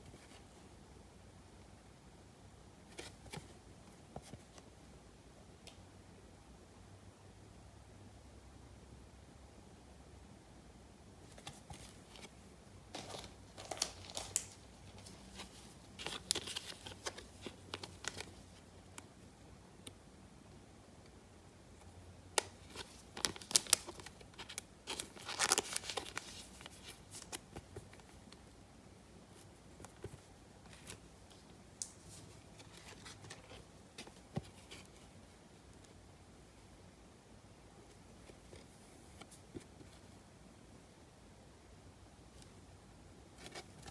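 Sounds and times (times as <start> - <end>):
trading cards rustling and clicking: 12.9 - 18.4, 22.6 - 28.0
packaging crinkling and tearing: 13.0 - 18.4, 22.4 - 27.4.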